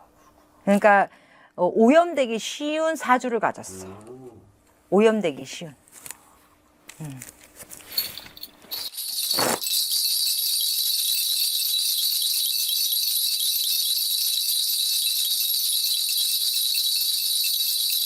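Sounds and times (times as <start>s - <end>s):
bells jingling: 7.9s - 18.0s.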